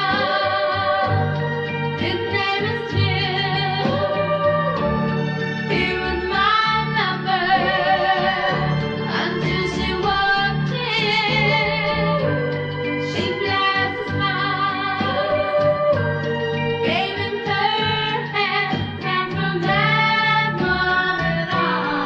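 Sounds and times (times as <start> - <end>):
band accompaniment: 0.0 - 22.0.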